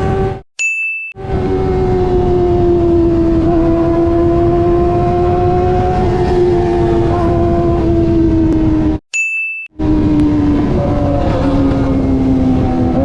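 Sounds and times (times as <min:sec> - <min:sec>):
motorcycle engine at high revs: 0:00.0 - 0:00.4, 0:01.2 - 0:09.0.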